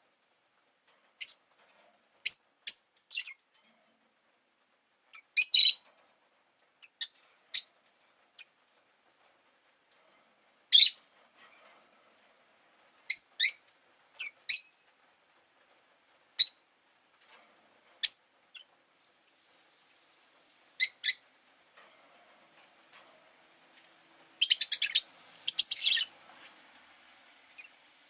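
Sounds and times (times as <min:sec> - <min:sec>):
lovebirds chirping: 0:02.3 - 0:03.4, 0:20.8 - 0:21.2, 0:24.4 - 0:26.1.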